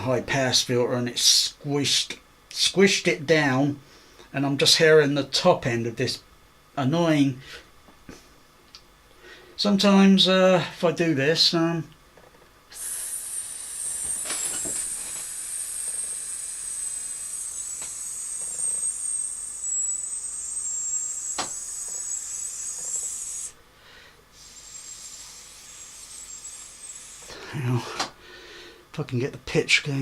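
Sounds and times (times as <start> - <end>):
person hissing through lips: 12.7 - 15.2, 24.4 - 27.6.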